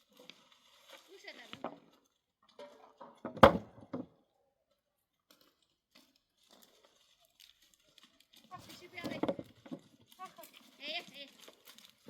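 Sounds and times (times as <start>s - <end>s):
faint knocks and rustles: 0.2s - 4.2s, 5.2s - 12.0s
sharp thump: 3.4s - 3.8s.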